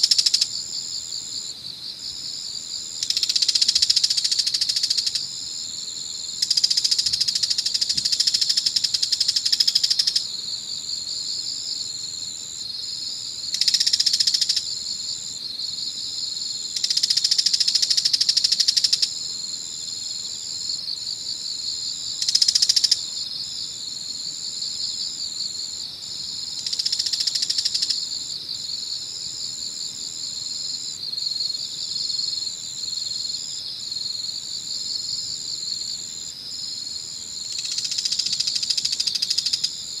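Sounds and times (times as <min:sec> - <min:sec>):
insect trilling: 0:00.0 - 0:01.1, 0:02.5 - 0:05.3, 0:06.4 - 0:10.3, 0:13.5 - 0:14.7, 0:16.7 - 0:19.2, 0:22.1 - 0:23.1, 0:26.4 - 0:28.9, 0:37.4 - 0:40.0
loud buzzy insect calls: 0:00.0 - 0:01.5, 0:02.3 - 0:05.6, 0:06.4 - 0:10.7, 0:13.5 - 0:14.8, 0:16.7 - 0:20.6, 0:21.9 - 0:23.6, 0:26.3 - 0:30.8, 0:35.8 - 0:40.0
insects pulsing chirping: 0:00.0 - 0:40.0.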